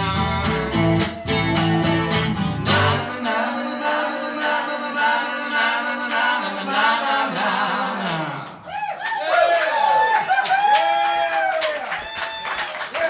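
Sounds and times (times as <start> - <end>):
country song with guitar and singing: 0.0 - 7.1.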